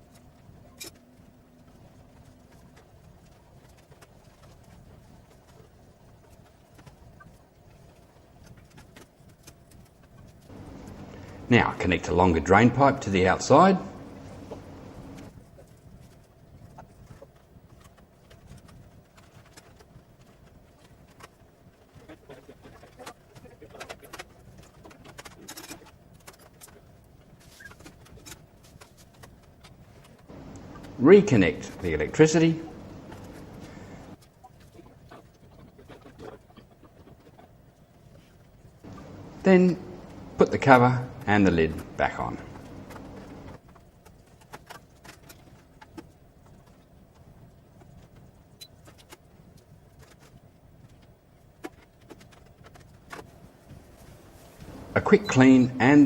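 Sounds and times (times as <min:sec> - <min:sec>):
faint clicks and taps: 0:01.7 - 0:11.5, 0:13.9 - 0:15.3, 0:27.8 - 0:31.0, 0:32.7 - 0:34.3, 0:38.8 - 0:53.8
low hum: 0:10.5 - 0:15.3, 0:30.3 - 0:34.2, 0:38.9 - 0:43.6, 0:54.6 - 0:56.0
pigeon cooing: 0:32.6 - 0:34.2.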